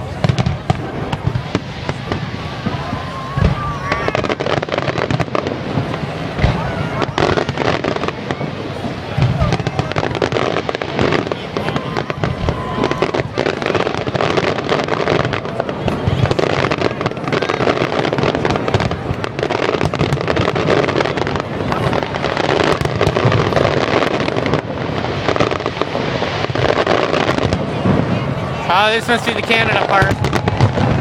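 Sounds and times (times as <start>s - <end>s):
fireworks booming and crackling: 0.0s - 31.0s.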